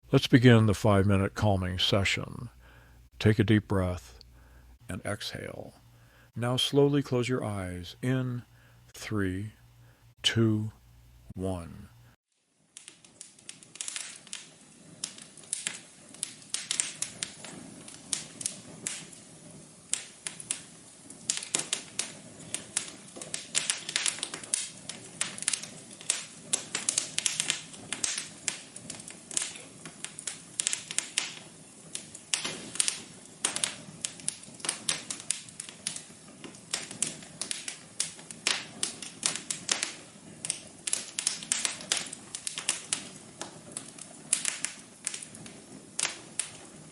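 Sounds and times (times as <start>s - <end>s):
low steady hiss: 0.0s - 46.9s
wood fire crackling and popping: 11.4s - 46.9s.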